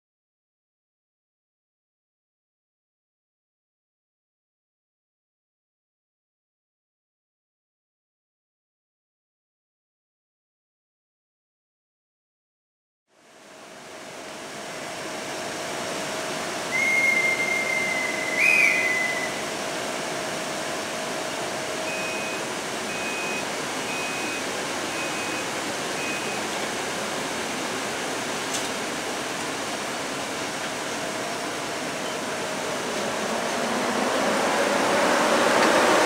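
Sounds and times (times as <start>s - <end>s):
locomotive rushing noise: 14.4s - 36.0s
guard's whistle: 16.7s - 19.4s
short beeps: 21.9s - 26.5s.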